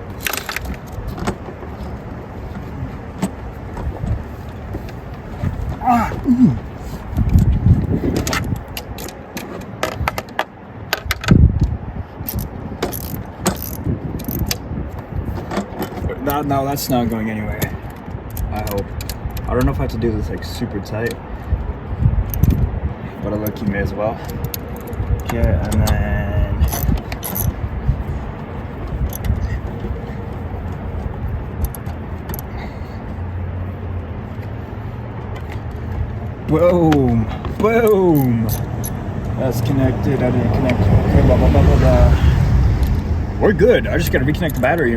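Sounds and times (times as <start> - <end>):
low outdoor rumble: 0.0 - 10.2, 10.8 - 44.9
hand tools clinking on metal: 36.5 - 39.0.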